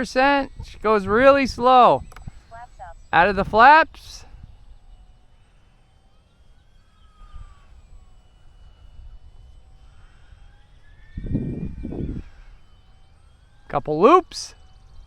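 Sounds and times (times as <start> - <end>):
wind buffeting microphone: 0.0 - 5.3, 7.0 - 13.5
model plane motor whining: 0.0 - 15.0.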